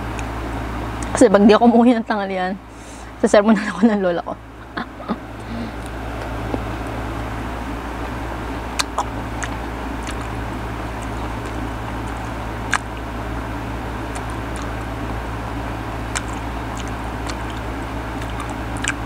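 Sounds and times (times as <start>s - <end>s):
background hum and hiss: 0.0s - 19.0s
mouth clicks and chewing crunches: 5.3s - 7.0s, 7.9s - 19.0s.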